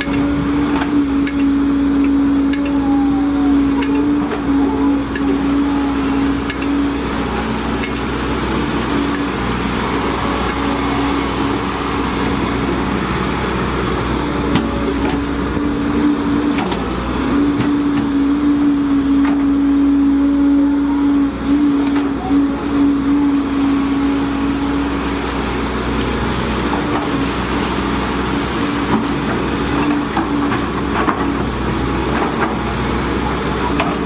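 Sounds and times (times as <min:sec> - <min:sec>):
excavator engine and hydraulics droning: 0:00.0 - 0:34.0.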